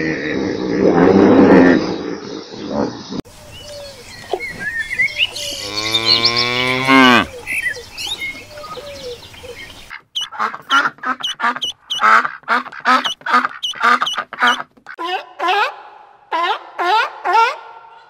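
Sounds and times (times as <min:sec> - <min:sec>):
cow mooing: 0:05.4 - 0:07.4
ducks quacking: 0:09.6 - 0:17.7.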